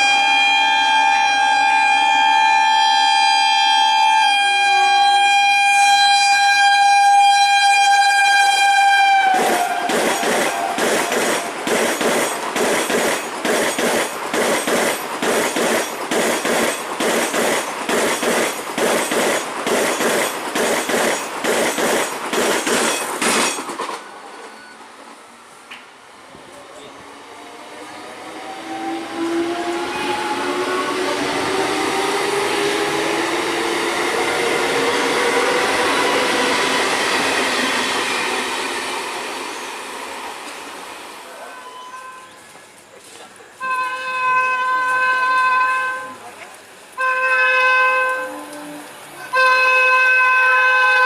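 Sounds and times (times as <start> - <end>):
train horn: 0.0 - 11.6, 28.6 - 36.5, 41.4 - 42.4, 43.6 - 46.4, 47.0 - 51.0
train wheels clickety-clack: 8.4 - 24.6.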